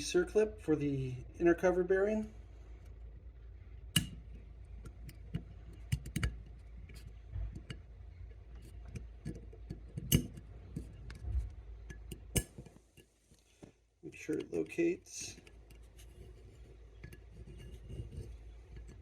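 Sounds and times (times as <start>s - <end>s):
low steady hum: 0.0s - 19.0s
metallic clicks of circlip: 4.0s - 7.8s, 8.6s - 13.4s.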